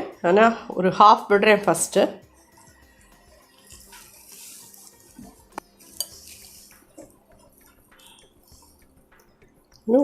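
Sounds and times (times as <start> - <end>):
utensil clinking against bowl: 5.2 - 8.2.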